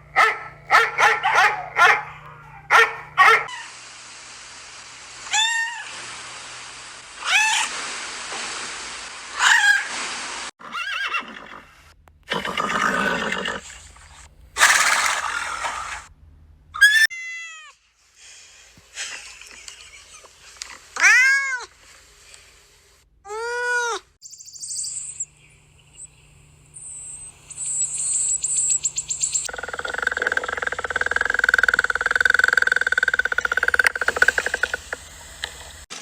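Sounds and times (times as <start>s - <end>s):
animal calls: 0.0s - 3.8s, 26.8s - 35.1s
steady hiss: 3.5s - 10.5s, 24.7s - 35.9s.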